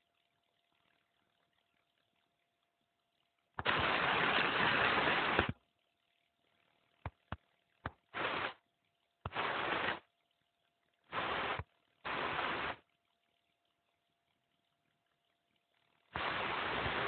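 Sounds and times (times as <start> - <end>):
rain noise bursts: 3.6 - 5.5, 8.1 - 8.6, 9.3 - 10.0, 11.1 - 12.8, 16.2 - 17.0.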